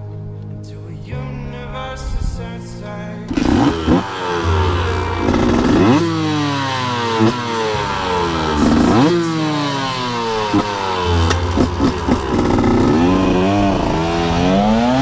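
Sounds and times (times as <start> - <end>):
sharp exhaust cracks: 3.3 - 15.0
two-stroke motorcycle engine revving: 3.3 - 15.0.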